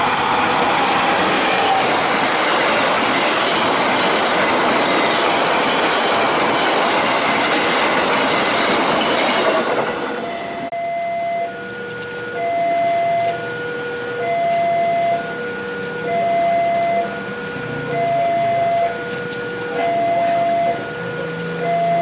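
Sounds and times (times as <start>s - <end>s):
train wheels clickety-clack: 0.0s - 10.3s
two-tone electronic warning tone: 10.2s - 22.0s.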